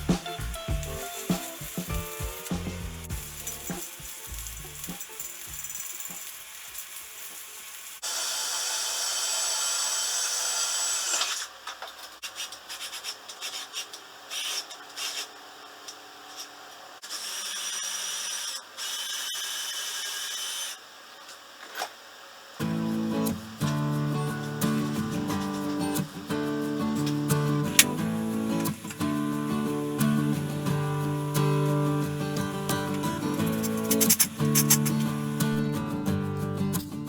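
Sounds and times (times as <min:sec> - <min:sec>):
power tool high whine: 0:08.0 - 0:11.5
scraping and rubbing: 0:12.1 - 0:15.4, 0:23.6 - 0:36.9.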